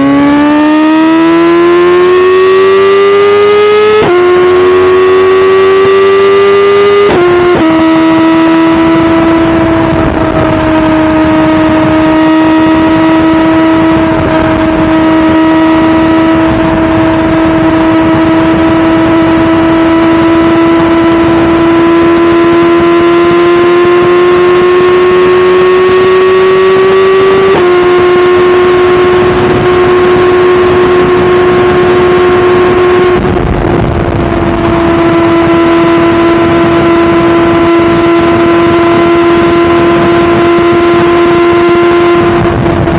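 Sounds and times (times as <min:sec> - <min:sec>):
motorcycle engine at speed: 0:00.0 - 0:42.9.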